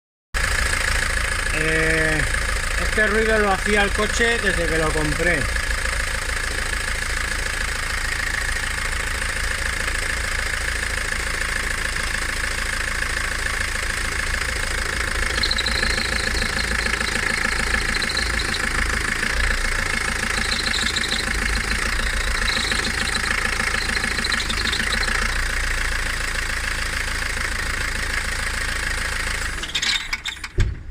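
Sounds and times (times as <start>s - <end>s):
car engine running: 0.4s - 30.2s
high squeaks: 14.8s - 25.6s, 29.6s - 30.6s.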